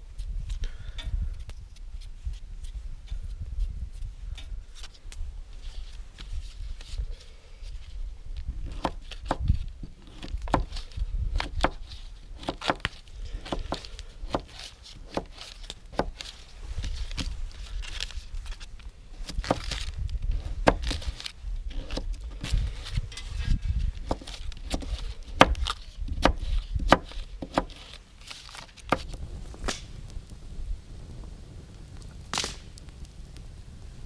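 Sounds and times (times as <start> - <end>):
sharp knocks and snaps: 12.4 - 16.4, 24.0 - 29.9.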